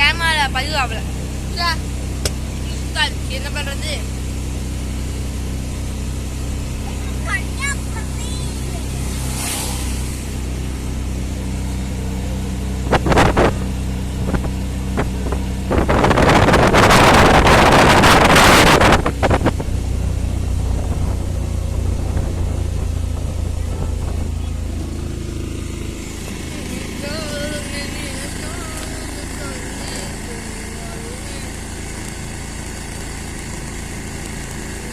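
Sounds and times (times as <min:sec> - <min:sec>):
vehicle motor drone: 0:00.0 - 0:34.9
loud rushing noise: 0:07.6 - 0:11.3.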